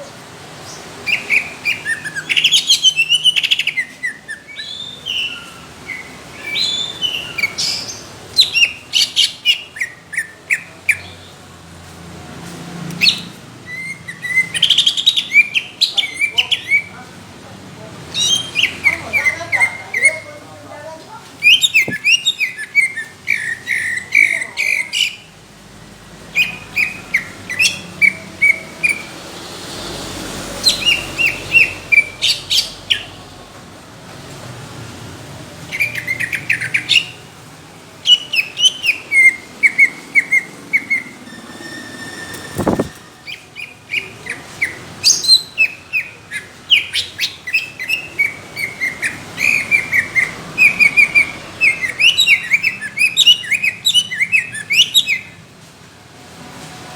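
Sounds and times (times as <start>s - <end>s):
bird singing chattering notes: 21.4s - 25.3s
dull thump: 42.6s - 43.0s.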